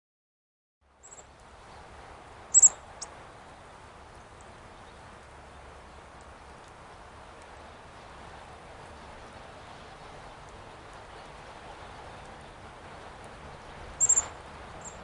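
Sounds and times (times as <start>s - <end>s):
outdoor background hiss: 0.8s - 15.0s
songbird high-pitched calls: 1.0s - 1.3s, 2.5s - 3.1s, 14.0s - 15.0s.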